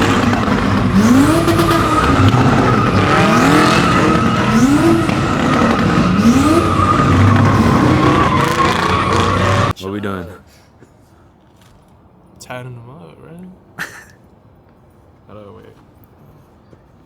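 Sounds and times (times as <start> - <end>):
car engine revving: 0.0 - 9.7
tires squealing: 0.0 - 9.8.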